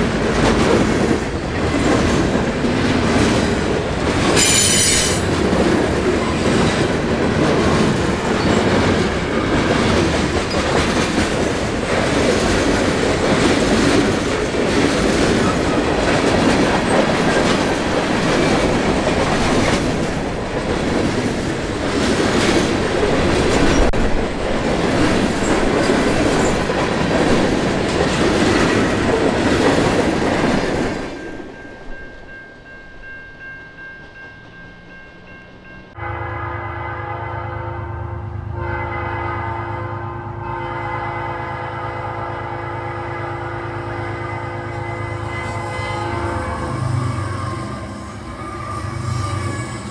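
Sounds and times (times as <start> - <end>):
high wheel squeal: 4.4 - 5.2, 45.4 - 49.9.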